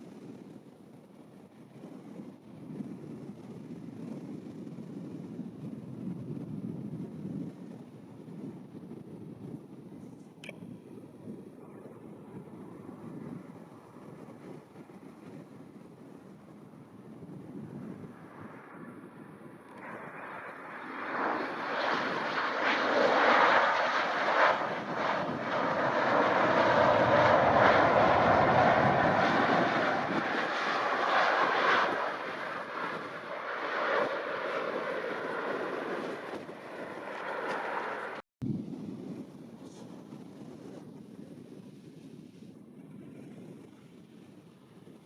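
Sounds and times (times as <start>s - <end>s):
jet airliner passing overhead: 10.5s - 38.2s.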